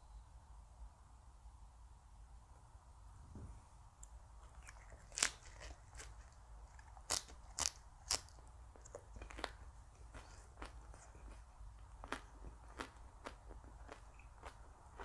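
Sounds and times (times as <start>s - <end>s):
crunchy food crunching: 4.4s - 15.0s.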